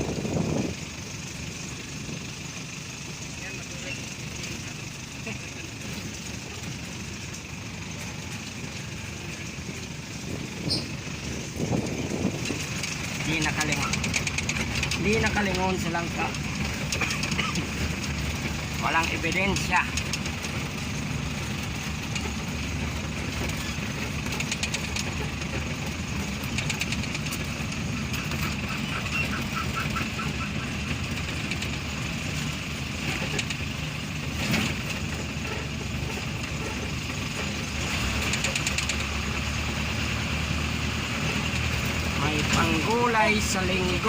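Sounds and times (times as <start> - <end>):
vehicle engine running: 0.0 - 44.0
knocks and rattles: 9.1 - 39.4.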